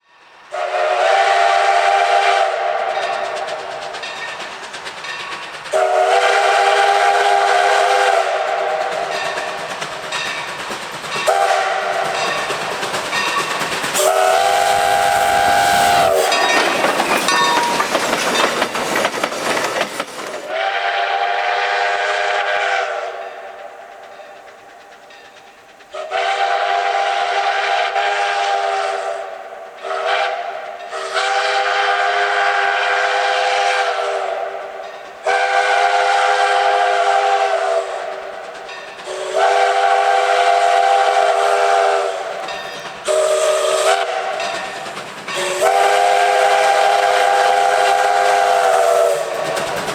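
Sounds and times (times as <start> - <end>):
steam locomotive whistle blasts: 0.0 - 4.0, 5.7 - 10.5, 11.2 - 18.1, 20.5 - 24.5, 25.8 - 49.9
train passing with rushing clatter: 0.0 - 49.9.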